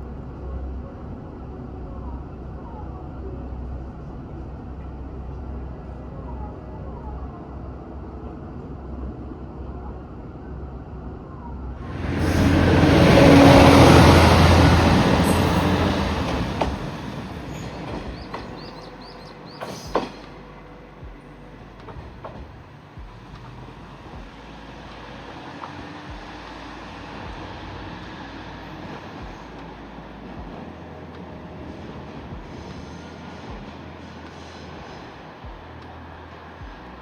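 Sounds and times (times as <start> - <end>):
diesel railcar rumble: 0.0 - 37.0
loud rushing rumble: 10.8 - 37.0.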